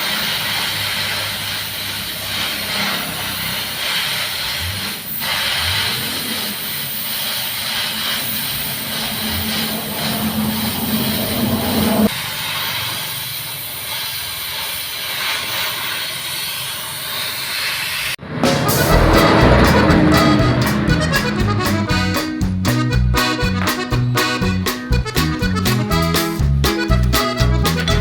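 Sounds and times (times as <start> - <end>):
machinery hissing: 0.0 - 23.9
low machine hum: 8.2 - 12.1, 18.3 - 22.6.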